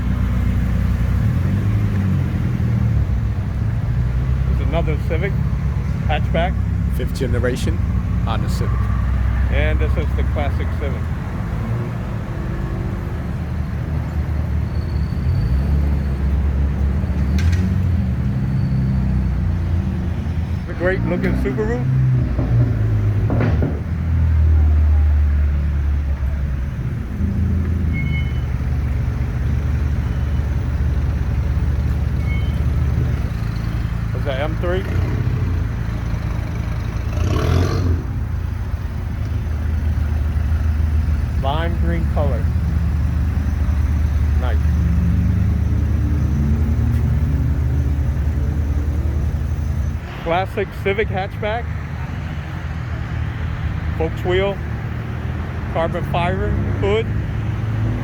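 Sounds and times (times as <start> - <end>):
car engines idling: 0.0 - 12.4, 13.0 - 57.8
louder car engine revving: 34.4 - 38.4.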